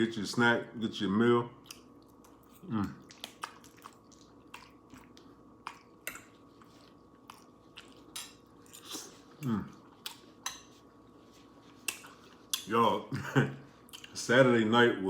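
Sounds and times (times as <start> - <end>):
chewing: 1.6 - 12.7
wet mouth clicks: 3.0 - 6.2.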